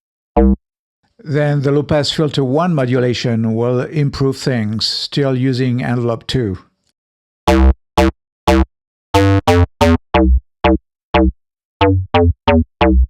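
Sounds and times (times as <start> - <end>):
synth plucked bass riff: 0.4 - 0.6, 7.5 - 13.0.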